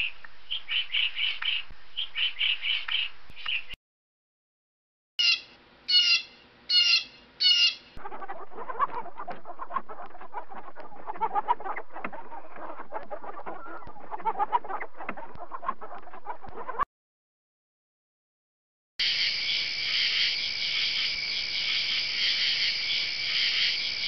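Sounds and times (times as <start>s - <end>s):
high-pitched bird calls: 5.2s - 14.4s
chickens clucking: 8.0s - 16.8s.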